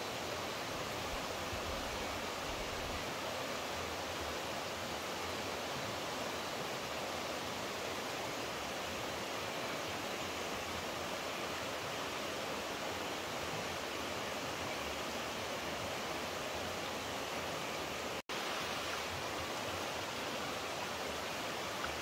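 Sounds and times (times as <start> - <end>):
rushing water: 0.0 - 22.0.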